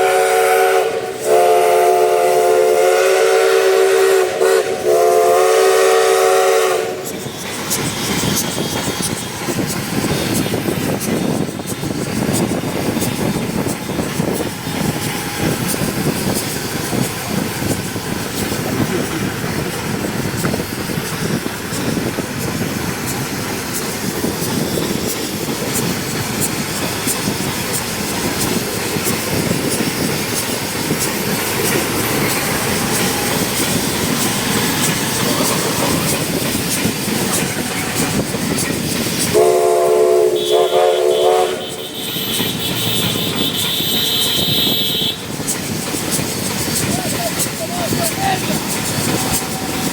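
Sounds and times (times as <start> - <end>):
steam train whistle blasts: 0.0 - 7.4, 39.2 - 45.3
train wheels rumbling on rails: 0.0 - 49.9.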